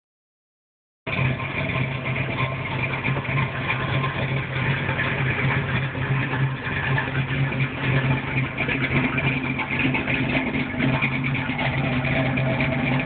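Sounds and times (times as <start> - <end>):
car engine idling: 1.1 - 13.0.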